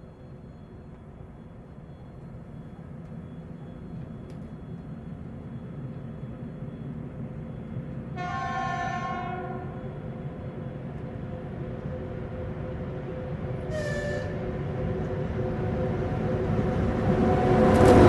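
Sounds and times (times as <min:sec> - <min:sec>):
train rumbling: 0:00.1 - 0:18.0
train horn blast: 0:08.2 - 0:09.9, 0:13.7 - 0:14.6.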